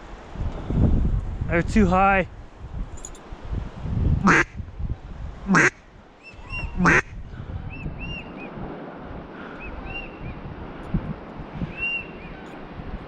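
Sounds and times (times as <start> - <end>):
duck quacking loudly: 4.2 - 4.5, 5.5 - 5.8, 6.8 - 7.1
faint waterfowl calls: 4.2 - 4.5, 5.5 - 7.2.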